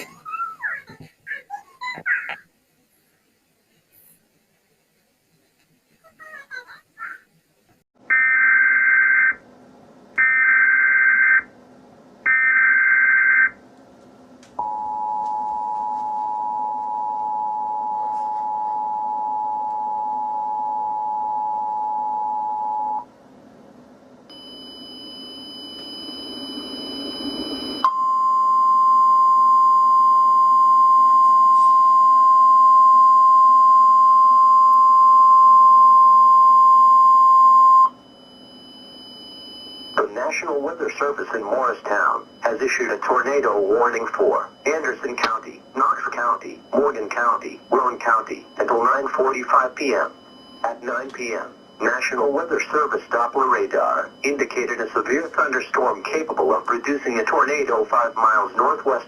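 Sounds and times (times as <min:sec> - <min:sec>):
two-tone attention signal: 0:24.3 - 0:40.1
alert data bursts: 0:37.8 - 0:59.0.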